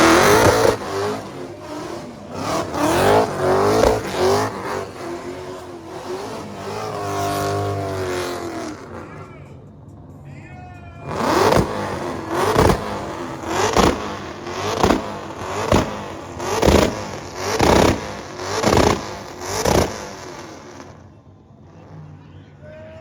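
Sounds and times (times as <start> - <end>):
car engine revving: 0.0 - 9.3, 11.0 - 22.2.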